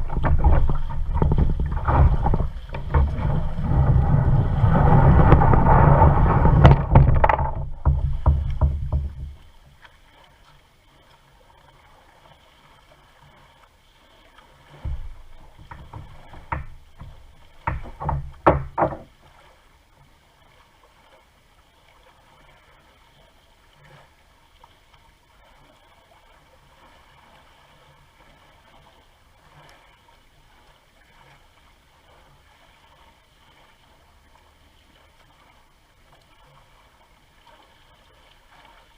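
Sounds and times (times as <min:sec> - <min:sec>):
sharp knocks on kayak: 0:00.0 - 0:09.5, 0:14.8 - 0:19.2
paddle splashes: 0:00.0 - 0:38.9
rush of wind and water: 0:00.0 - 0:38.9
water lapping: 0:00.0 - 0:38.9.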